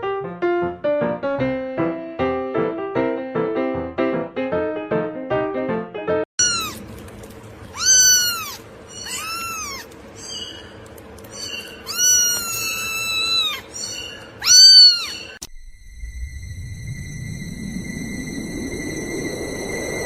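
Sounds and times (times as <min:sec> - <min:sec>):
cat meowing: 0:06.4 - 0:06.8, 0:07.7 - 0:10.7, 0:11.3 - 0:15.5.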